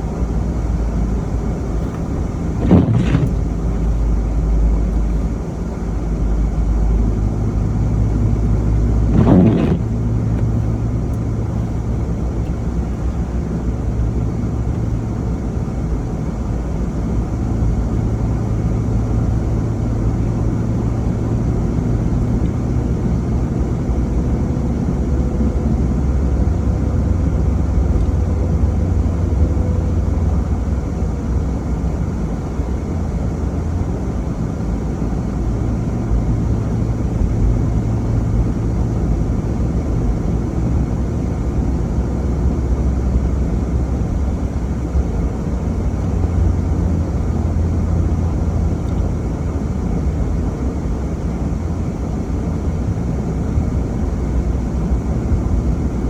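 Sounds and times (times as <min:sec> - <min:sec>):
car engine and road noise: 0:00.0 - 0:56.0
short rushes of noise: 0:01.8 - 0:04.3, 0:09.0 - 0:10.8.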